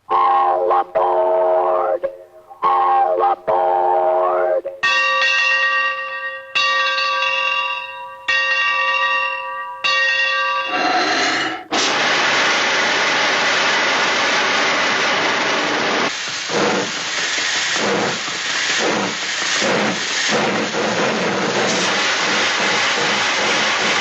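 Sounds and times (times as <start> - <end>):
bell ringing: 4.8 - 10.8
loud steady hiss: 11.1 - 24.0.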